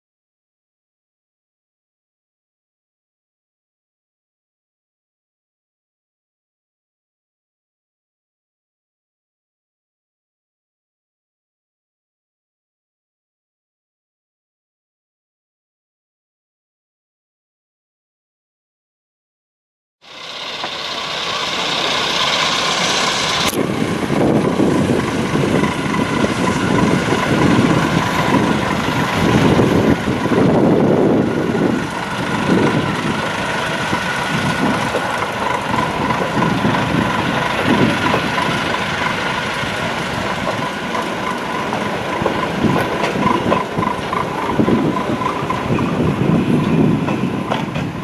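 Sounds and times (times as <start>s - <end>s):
light railway train running: 20.0s - 48.0s.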